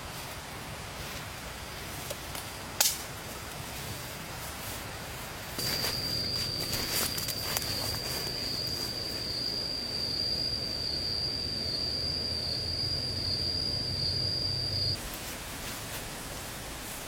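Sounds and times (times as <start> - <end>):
insect trilling drone: 5.6 - 15.0.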